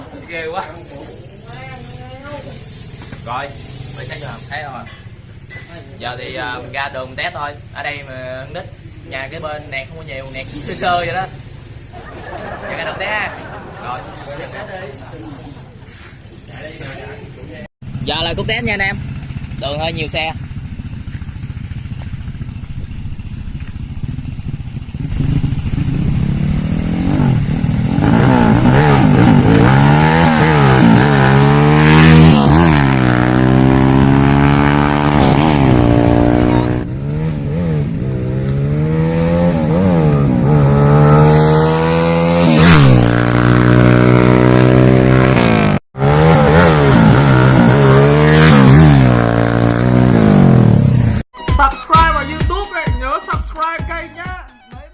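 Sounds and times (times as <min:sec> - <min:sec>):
motorcycle engine accelerating: 0:00.0 - 0:51.3.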